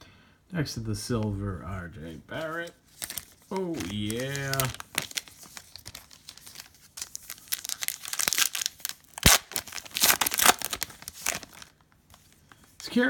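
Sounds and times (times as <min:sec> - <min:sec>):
plastic wrapper crinkling and tearing: 0:02.4 - 0:12.7.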